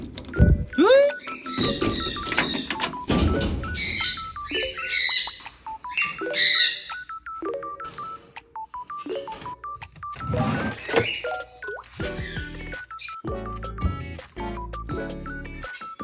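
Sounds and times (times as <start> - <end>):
background music plinking melody: 0.3 - 16.0
parrot harsh calls: 3.8 - 7.0.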